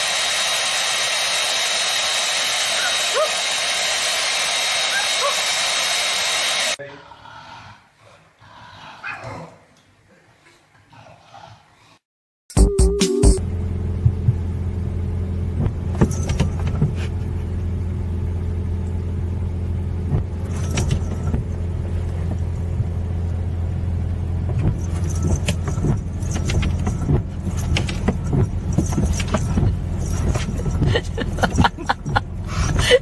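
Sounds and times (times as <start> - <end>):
low motor hum: 13.3 - 33.0
clicks and rattles: 24.5 - 32.2.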